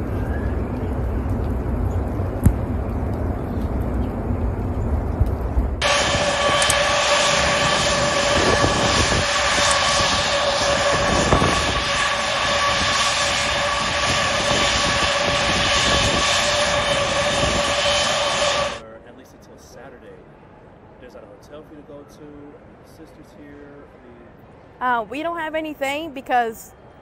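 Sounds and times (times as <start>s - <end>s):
jet engine running: 0.0s - 19.9s.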